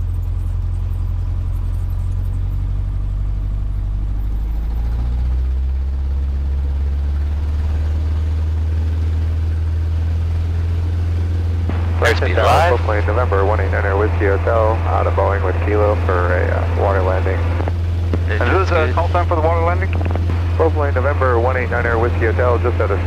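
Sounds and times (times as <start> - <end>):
propeller plane engine droning: 0.0 - 23.0.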